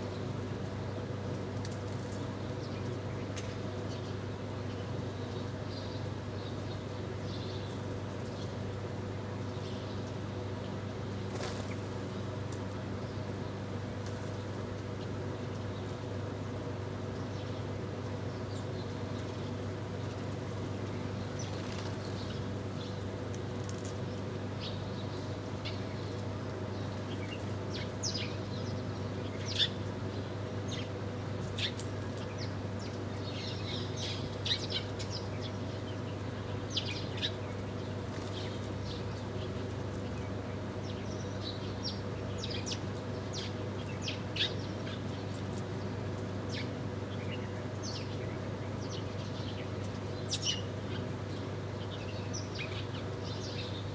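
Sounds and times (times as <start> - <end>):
small birds chirping: 18.3 - 23.0, 24.6 - 53.9.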